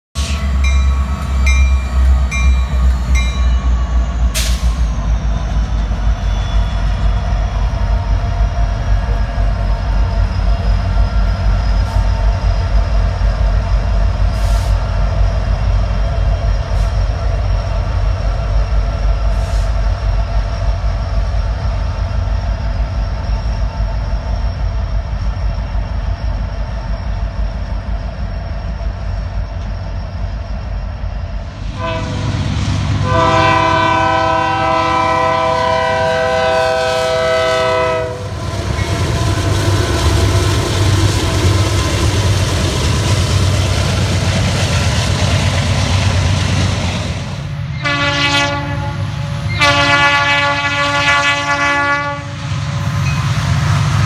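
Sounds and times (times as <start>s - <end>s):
crossing bell ringing: 0.2s - 5.7s
freight train rumbling past: 0.2s - 54.0s.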